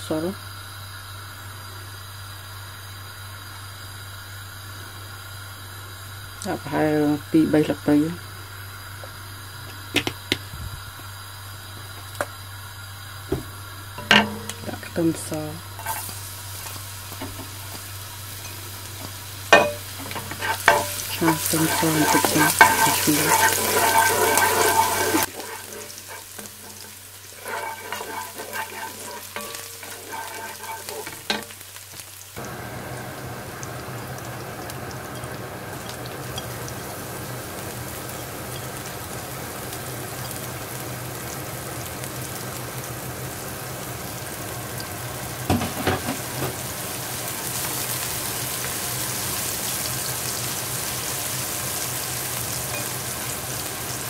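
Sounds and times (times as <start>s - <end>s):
garlic sizzling in hot oil: 0.0s - 54.0s
low hum: 14.0s - 31.5s
wooden spoon stirring: 18.4s - 31.6s.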